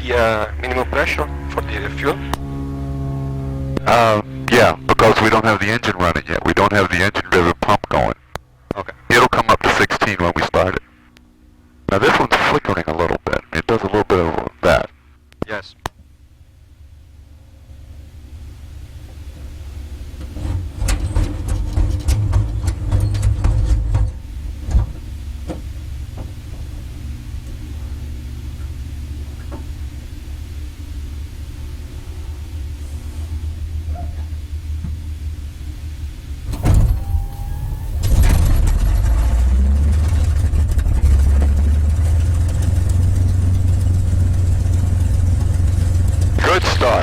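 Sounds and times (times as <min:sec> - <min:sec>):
aircraft engine rumbling: 0:00.0 - 0:47.0
engine pops and cracks: 0:20.2 - 0:26.7, 0:36.4 - 0:46.6
engine bang: 0:36.4 - 0:47.0.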